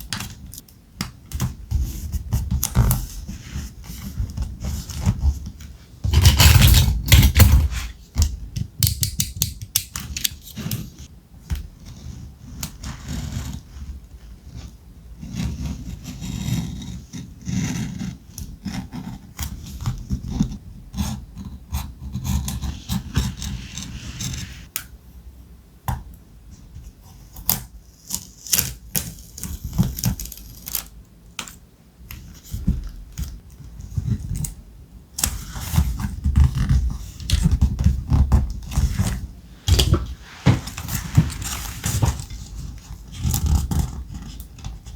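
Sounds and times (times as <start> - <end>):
thick paper rustling: 39.5 - 43.0.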